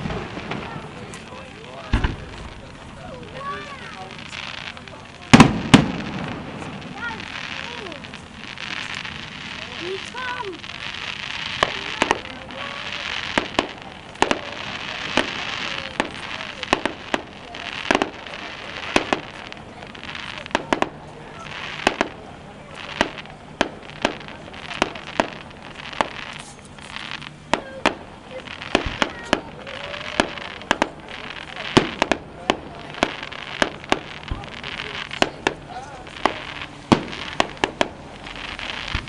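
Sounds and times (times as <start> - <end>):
fireworks bursting with bangs: 0.0 - 39.0.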